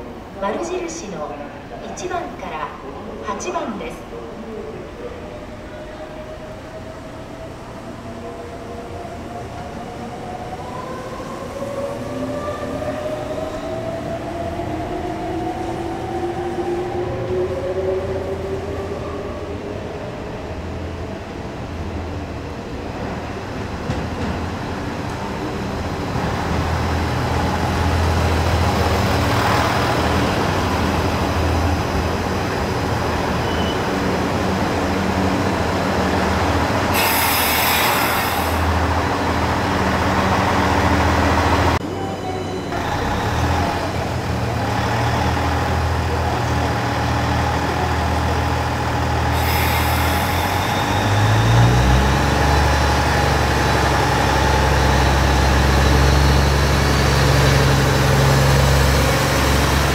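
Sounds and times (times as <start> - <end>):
diesel train engine drone: 4.0 - 59.9
compressed air hisses: 36.9 - 38.8, 49.3 - 51.4.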